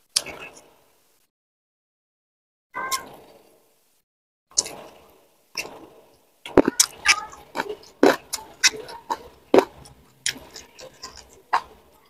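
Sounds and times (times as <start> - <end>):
chewing raw vegetables crunching: 6.5 - 12.0.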